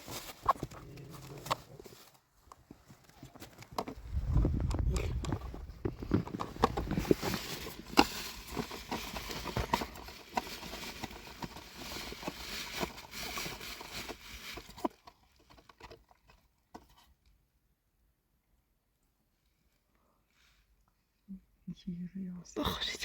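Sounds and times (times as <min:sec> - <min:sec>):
hooves clattering on hard ground: 0:00.0 - 0:11.6.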